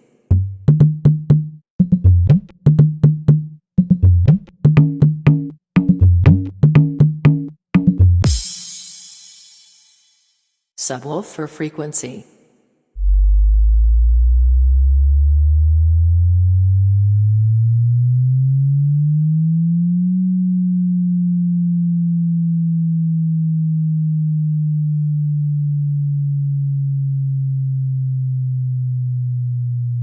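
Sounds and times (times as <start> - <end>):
deep sine tone sweeping: 13.0 - 30.0.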